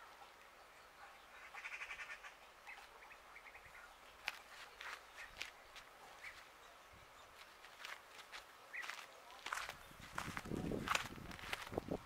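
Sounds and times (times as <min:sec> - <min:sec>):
faint bird chattering: 0:01.2 - 0:04.0.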